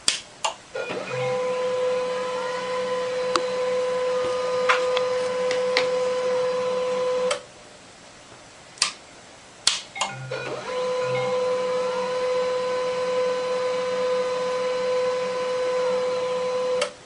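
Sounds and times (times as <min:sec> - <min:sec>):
printer motor whine: 0:00.8 - 0:07.4, 0:10.1 - 0:17.0.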